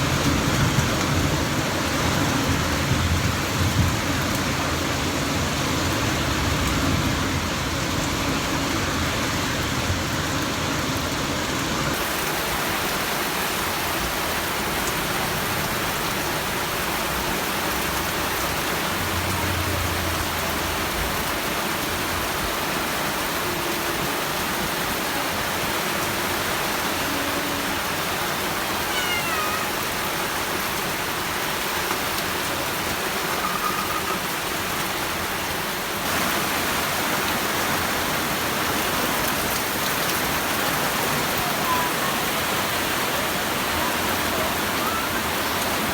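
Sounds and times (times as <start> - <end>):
steady rain: 0.0 - 45.9
faint falling chirps: 33.3 - 34.3.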